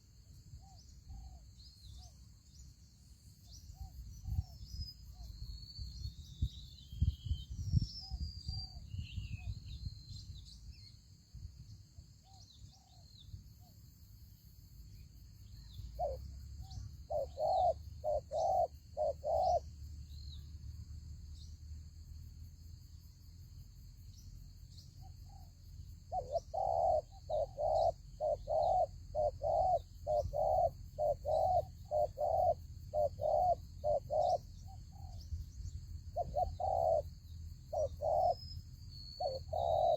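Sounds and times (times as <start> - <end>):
small birds chirping: 14.9 - 21.8, 24.0 - 39.9
dove cooing: 16.0 - 19.7, 26.1 - 35.2, 36.2 - 37.1, 37.7 - 38.4, 39.2 - 39.9.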